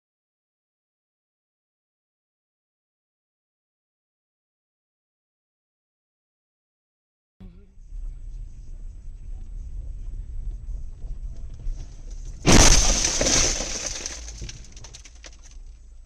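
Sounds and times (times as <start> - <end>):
road and engine rumble: 7.4 - 16.0
vehicle collision crash: 12.3 - 15.8
glass shattering: 12.4 - 15.5.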